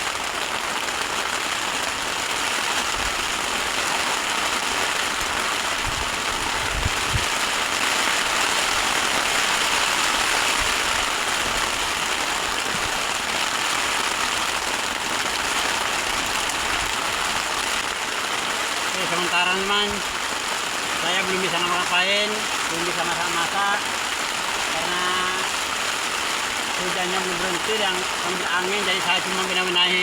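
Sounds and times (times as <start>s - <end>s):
heavy rain hissing: 0.0s - 30.0s.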